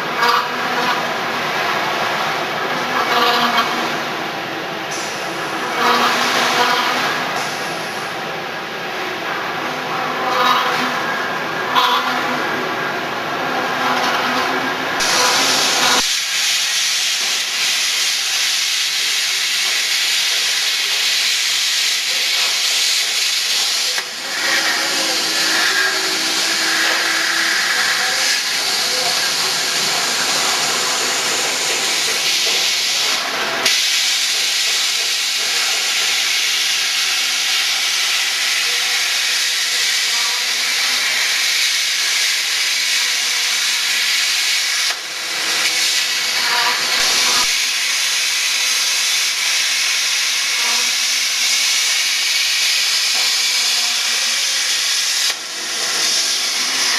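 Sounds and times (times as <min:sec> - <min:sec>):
plasma torch hissing: 0:14.9 - 0:56.9.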